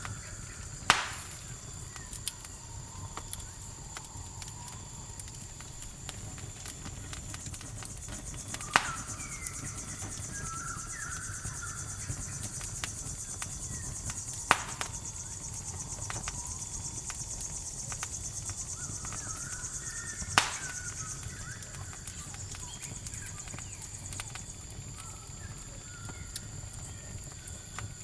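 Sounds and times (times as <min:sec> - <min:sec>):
faint chirping calls: 0:00.0 - 0:05.4, 0:07.4 - 0:27.7
campfire crackling: 0:00.0 - 0:28.0
crickets trilling: 0:00.0 - 0:28.0
sharp loud pops: 0:00.8 - 0:01.5, 0:08.5 - 0:09.7, 0:14.1 - 0:15.1, 0:20.3 - 0:21.1.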